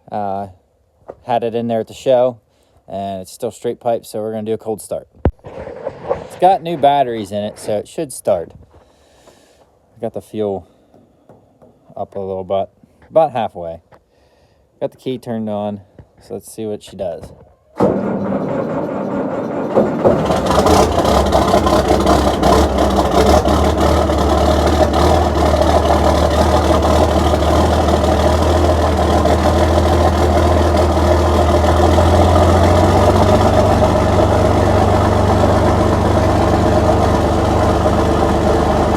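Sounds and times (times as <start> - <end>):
tractor engine starting and idling: 17.8 - 38.9.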